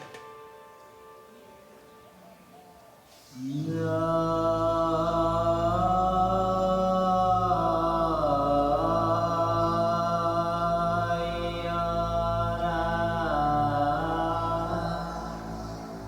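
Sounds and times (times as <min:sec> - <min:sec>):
voice chanting long notes: 0:00.0 - 0:16.0
low drone: 0:03.2 - 0:16.0.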